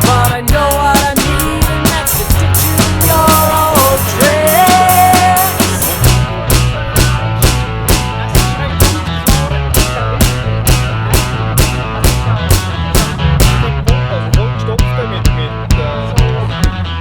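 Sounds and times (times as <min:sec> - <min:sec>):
drum kit beat: 0:00.0 - 0:17.0
rock guitar: 0:00.0 - 0:17.0.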